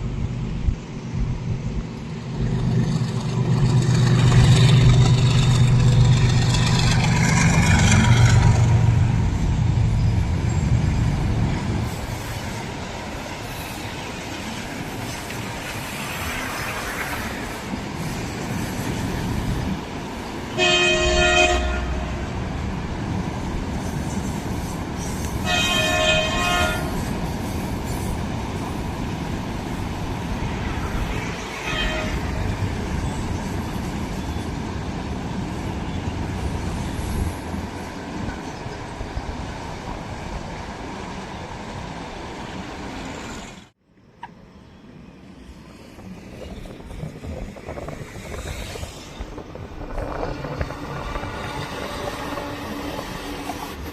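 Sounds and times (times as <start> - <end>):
train wheels rumbling on rails: 0.0 - 44.4, 45.2 - 53.9
locomotive horn blasts: 20.6 - 22.3, 25.4 - 27.0, 31.6 - 32.4.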